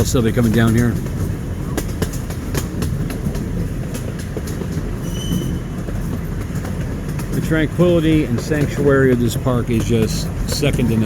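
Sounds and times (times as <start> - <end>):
train rolling rumble: 0.0 - 11.0
wheels clicking on rails: 0.0 - 11.0
faint high squeal: 5.0 - 5.7.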